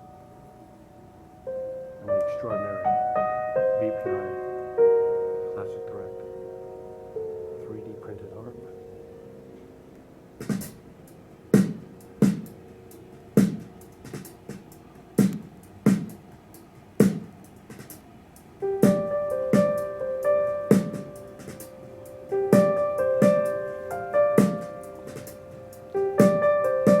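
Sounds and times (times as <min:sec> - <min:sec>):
held synth chord: 0:00.0 - 0:13.4
electric piano chords: 0:00.0 - 0:27.0
drum beat: 0:10.4 - 0:10.8, 0:11.5 - 0:19.9, 0:20.7 - 0:21.8, 0:22.4 - 0:23.6, 0:24.4 - 0:27.0.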